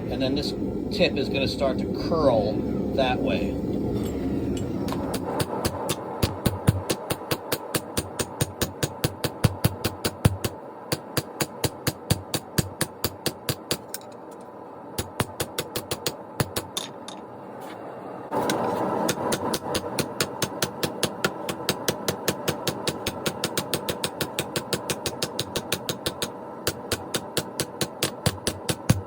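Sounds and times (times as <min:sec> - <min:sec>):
hammer striking steel on anvil: 0:04.0 - 0:14.2, 0:18.4 - 0:29.0.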